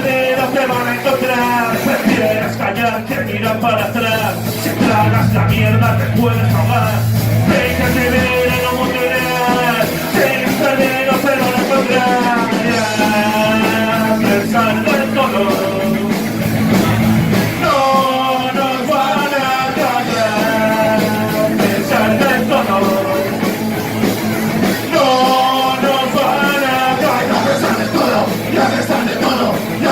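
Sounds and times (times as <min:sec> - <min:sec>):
rock band playing: 0:00.0 - 0:29.9
wavering lead melody: 0:02.9 - 0:10.6.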